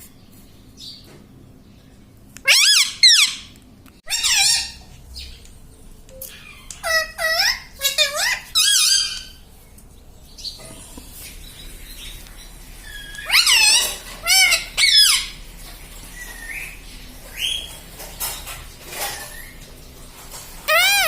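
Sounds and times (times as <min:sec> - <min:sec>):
parrot squawking: 0:02.4 - 0:05.3, 0:06.2 - 0:09.4, 0:12.8 - 0:15.4, 0:20.6 - 0:21.0.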